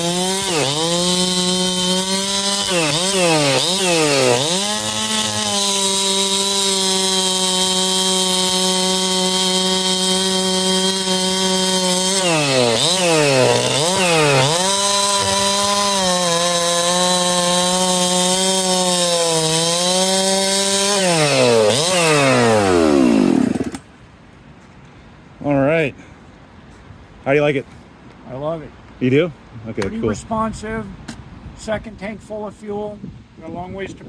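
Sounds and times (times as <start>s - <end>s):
chainsaw cutting wood: 0.0s - 23.9s.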